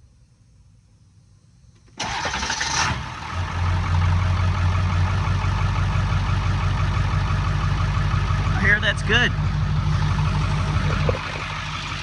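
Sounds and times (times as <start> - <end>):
diesel engine idling: 1.8 - 12.0
starter motor cranking: 2.0 - 3.2.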